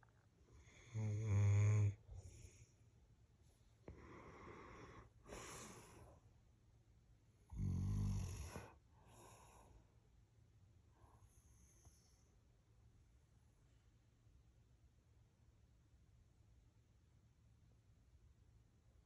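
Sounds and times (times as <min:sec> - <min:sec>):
dog snoring: 0:00.6 - 0:02.6, 0:07.5 - 0:09.6.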